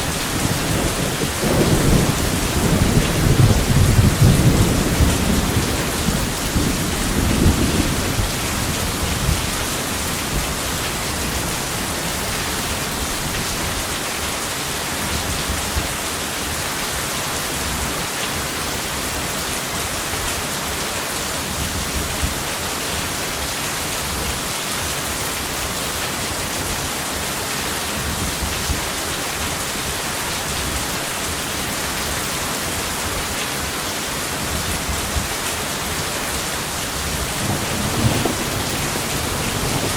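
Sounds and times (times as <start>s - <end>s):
thunder rumbling: 0.0s - 9.5s, 37.0s - 39.9s
heavy rain: 0.0s - 39.9s.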